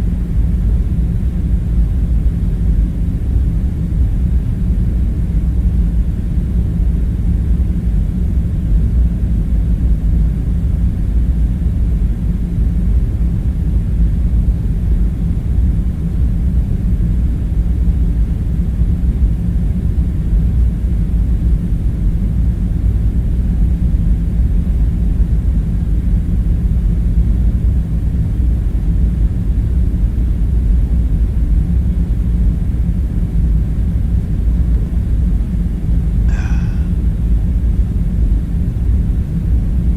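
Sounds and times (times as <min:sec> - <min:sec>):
faint low hum: 0:36.2 - 0:37.2
deep rumbling drone: 0:36.3 - 0:37.2.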